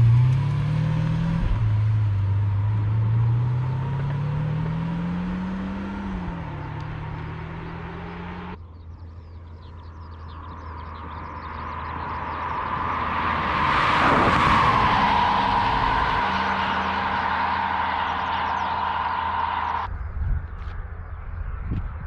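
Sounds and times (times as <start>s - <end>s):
steady engine hum: 0.0s - 22.0s
car passing by: 11.0s - 19.9s.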